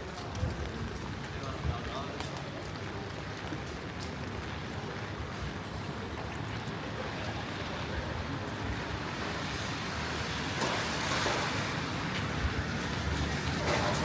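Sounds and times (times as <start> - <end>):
rain hissing on wet pavement: 0.0 - 14.0.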